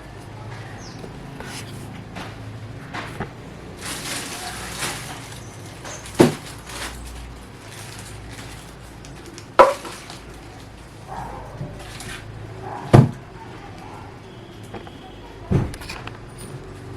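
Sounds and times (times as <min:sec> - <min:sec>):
rustling and scraping: 0:00.5 - 0:13.3
sharp knocks: 0:09.6 - 0:10.0.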